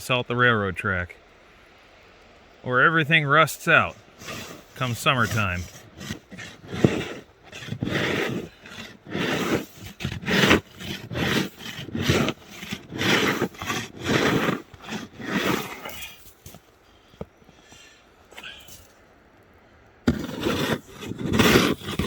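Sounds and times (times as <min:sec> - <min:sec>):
shovel scraping ice off rails: 0:03.6 - 0:16.7, 0:20.1 - 0:22.0.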